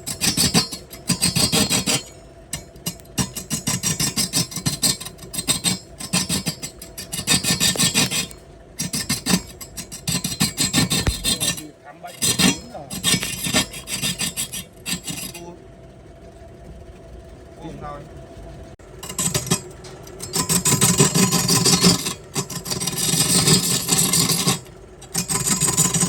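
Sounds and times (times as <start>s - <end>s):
rasping strokes on wood: 0.0s - 15.5s, 20.4s - 24.6s.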